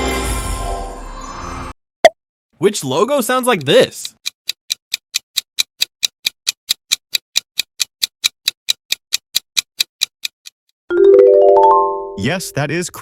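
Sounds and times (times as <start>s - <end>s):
clock ticking: 3.3s - 10.6s.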